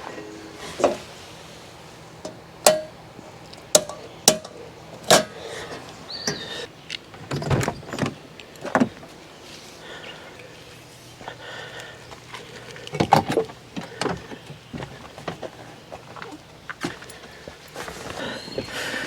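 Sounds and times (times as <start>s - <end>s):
camping gear knocking: 2.2s - 3.1s, 3.7s - 5.4s.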